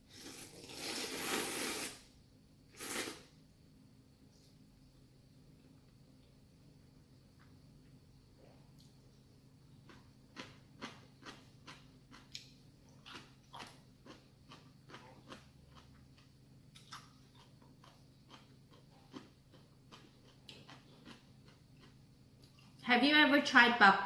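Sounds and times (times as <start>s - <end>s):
chewing noodles: 9.8s - 22.8s.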